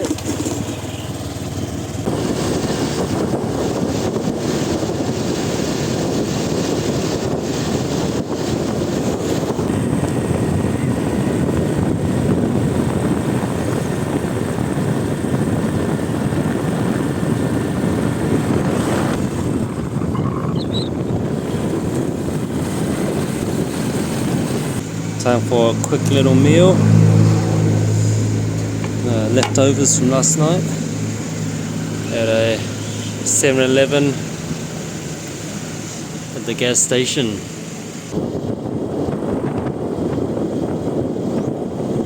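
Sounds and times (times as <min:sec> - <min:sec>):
motorbike engine and road noise: 0:00.0 - 0:42.0
wind buffeting microphone: 0:00.0 - 0:42.0.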